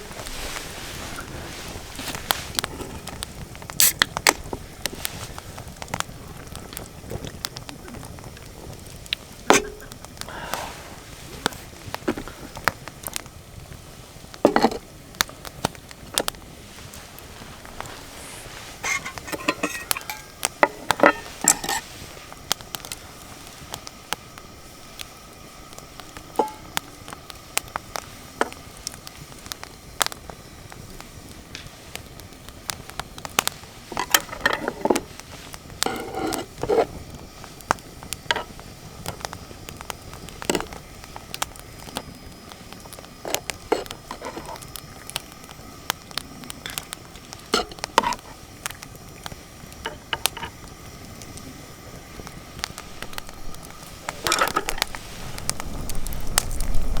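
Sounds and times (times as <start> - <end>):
wood fire crackling: 0.0 - 57.0
cookware knocking and clinking: 18.8 - 21.8.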